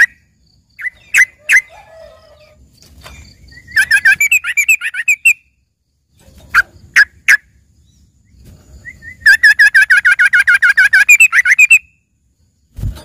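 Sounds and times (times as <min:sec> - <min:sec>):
bird singing repeated notes: 0:00.0 - 0:01.9, 0:03.1 - 0:12.1.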